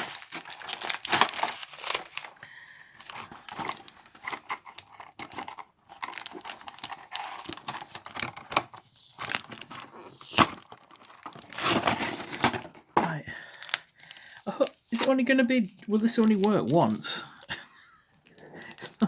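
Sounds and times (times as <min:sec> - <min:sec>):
packaging tearing: 0:00.0 - 0:17.2
packaging crinkling: 0:00.0 - 0:17.6.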